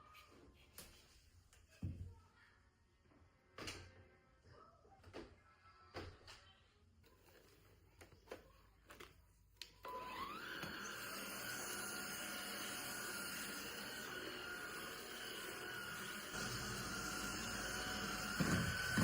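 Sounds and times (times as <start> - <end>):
vacuum cleaner motor running: 9.8 - 19.0.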